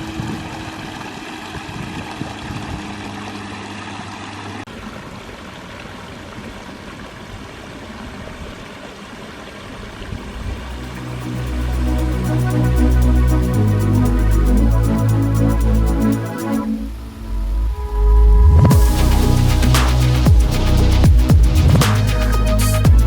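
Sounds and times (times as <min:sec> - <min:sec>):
low hum: 0:10.1 - 0:23.0
electronic music: 0:10.6 - 0:23.0.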